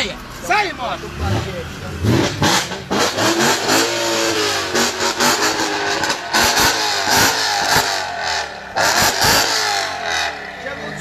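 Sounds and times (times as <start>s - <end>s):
car engine revving: 0.8s - 11.0s.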